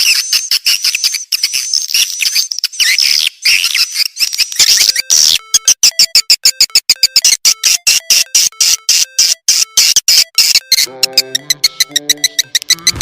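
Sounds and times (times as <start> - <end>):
swiftlets chirping: 2.7 - 13.0.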